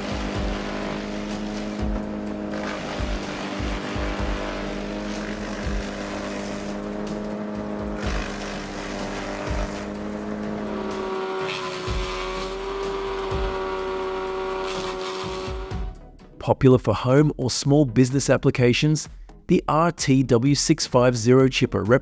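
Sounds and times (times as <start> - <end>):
wood chipper engine droning: 0.0 - 15.9.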